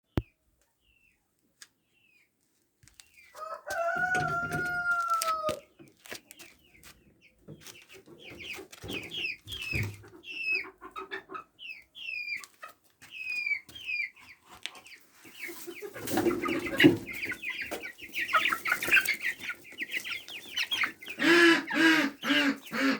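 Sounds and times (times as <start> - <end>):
chicken clucking: 2.9 - 22.9
chicken chirps: 3.0 - 22.9
rooster crowing: 3.4 - 5.6.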